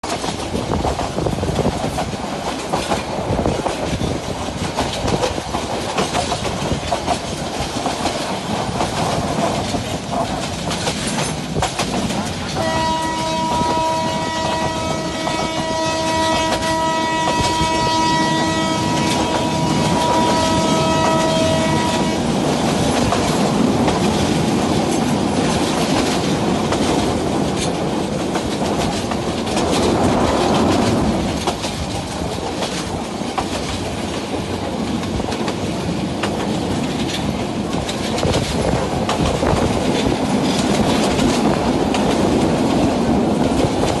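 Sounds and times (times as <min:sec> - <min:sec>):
train wheels clacking over rails: 0:00.0 - 0:44.0
train horn blast: 0:12.6 - 0:22.4.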